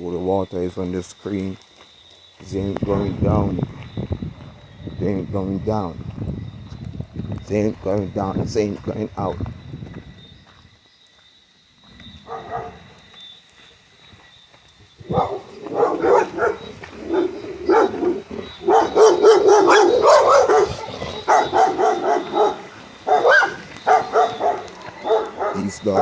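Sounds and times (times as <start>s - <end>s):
dogs barking: 12.1s - 13.1s, 15.0s - 26.0s.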